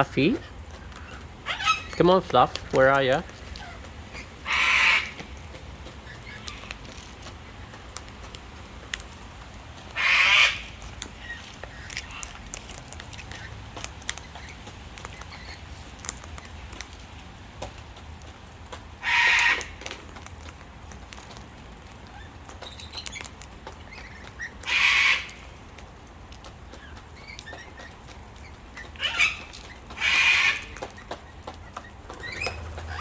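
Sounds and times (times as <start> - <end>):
light pattering and clicks: 0.0 - 33.0
cockatoo screeching: 1.0 - 2.0, 3.6 - 5.2, 10.0 - 12.5, 19.0 - 19.8, 24.4 - 25.4, 28.9 - 30.9.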